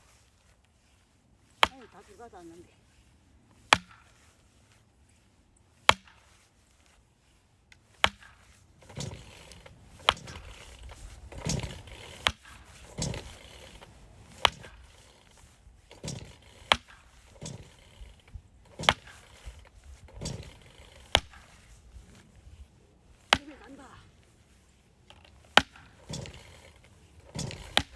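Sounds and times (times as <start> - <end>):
wood splitting strikes: 1.5 - 2.3, 3.6 - 4.3, 5.8 - 6.4, 8.0 - 21.8, 23.2 - 23.8, 25.2 - 27.9.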